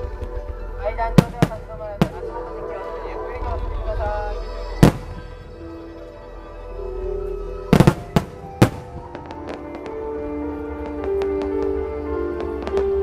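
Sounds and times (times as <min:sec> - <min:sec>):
fireworks crackling: 0:00.0 - 0:02.8, 0:03.4 - 0:06.0, 0:07.6 - 0:13.0
music with long held notes: 0:00.0 - 0:13.0
fireworks bangs: 0:01.2 - 0:02.5, 0:04.8 - 0:05.8, 0:07.7 - 0:13.0.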